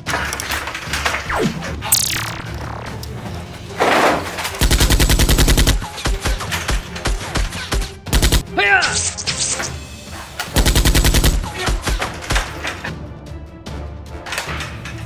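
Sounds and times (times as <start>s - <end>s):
background music: 0.0s - 15.0s
machine-gun fire: 3.8s - 8.5s, 10.6s - 12.5s.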